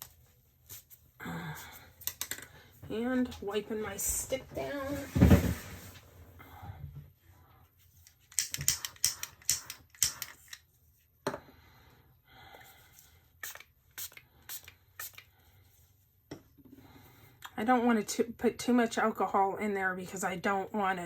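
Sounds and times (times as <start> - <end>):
spray bottle spritzes: 13.4 - 15.2.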